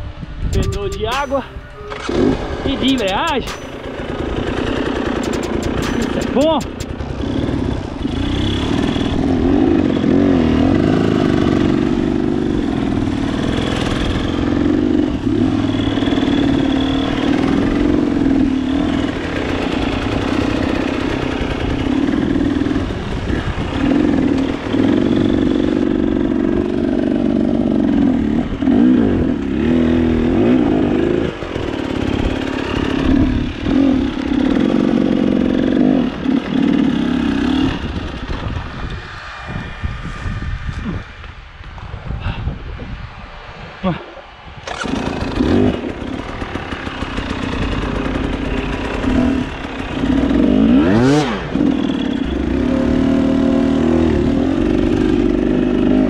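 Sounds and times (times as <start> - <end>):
clatter over rough ground: 0.5 - 10.0, 15.4 - 25.9, 44.6 - 53.1
motorcycle engine revving: 0.5 - 41.2, 44.5 - 56.0.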